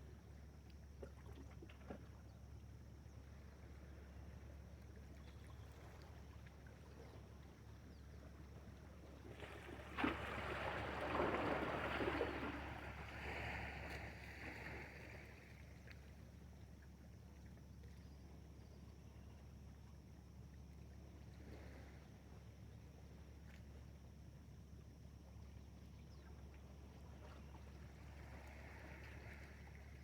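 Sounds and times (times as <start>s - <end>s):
faint steady hum: 0.0s - 30.0s
water splashing and sloshing: 0.5s - 2.6s, 4.9s - 18.0s, 26.4s - 30.0s.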